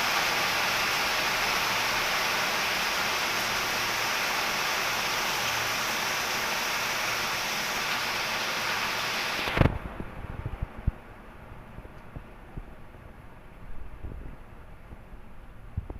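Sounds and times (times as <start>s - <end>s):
heavy rain hissing: 0.0s - 9.8s.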